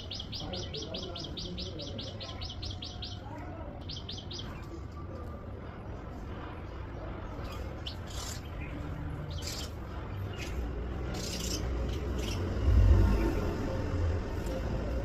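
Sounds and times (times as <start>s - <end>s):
bird chirping: 0.0s - 4.7s, 7.5s - 13.6s
steady low rumble: 5.6s - 15.0s.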